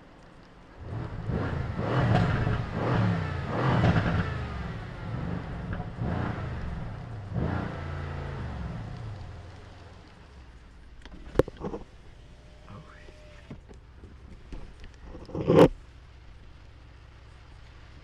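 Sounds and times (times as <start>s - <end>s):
car engine revving: 0.7s - 13.6s.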